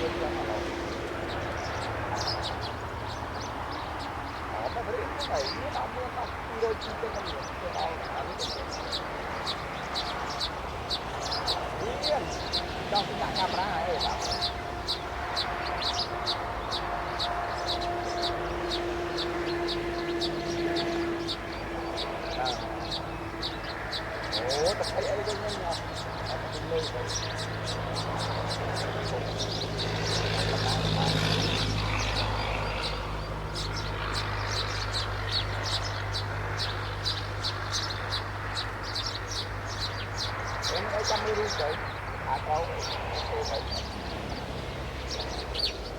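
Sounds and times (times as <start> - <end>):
small birds chirping: 0.0 - 45.9
steady humming drone: 0.0 - 45.9.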